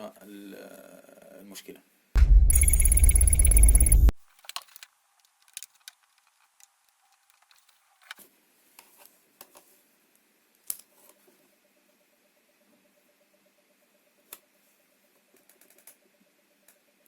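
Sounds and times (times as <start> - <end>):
faint pulsing tone: 2.2 - 4.1.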